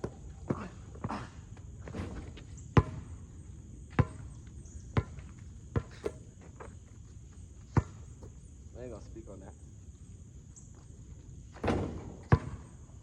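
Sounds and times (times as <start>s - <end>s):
basketball bouncing on pavement: 1.8s - 3.2s, 3.8s - 6.8s, 7.7s - 8.3s, 11.5s - 13.0s.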